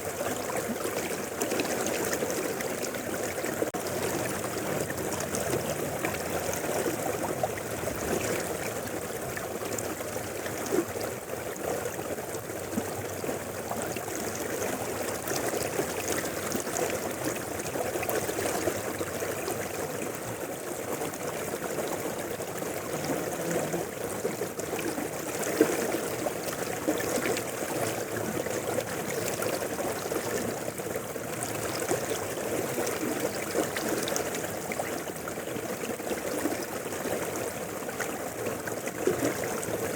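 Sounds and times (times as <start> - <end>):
water splashes: 0.0 - 39.9
river flowing: 0.2 - 39.9.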